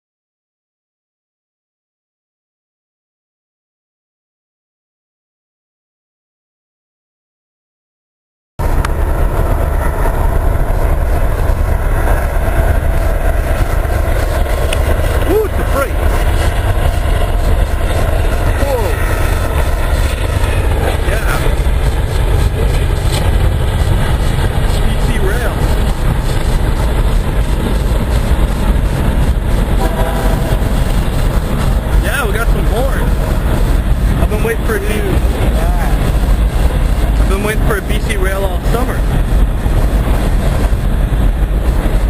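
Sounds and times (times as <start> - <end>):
freight train rumbling by: 8.6 - 42.0.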